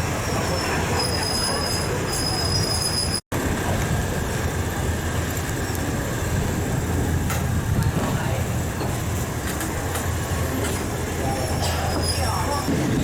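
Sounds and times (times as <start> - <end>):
train rumbling on rails: 0.0 - 13.0
high-pitched wheel squeal: 0.1 - 3.2, 11.3 - 12.7.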